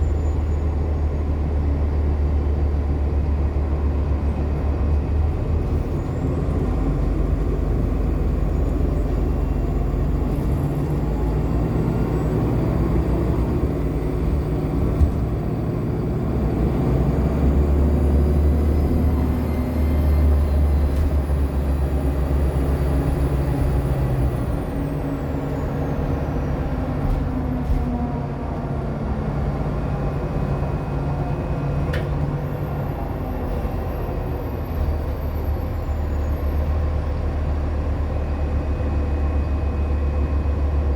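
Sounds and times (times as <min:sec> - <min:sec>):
high-pitched bus squeal: 0:00.0 - 0:01.4, 0:17.8 - 0:26.9, 0:30.8 - 0:37.3
bus engine rumble: 0:00.0 - 0:40.9.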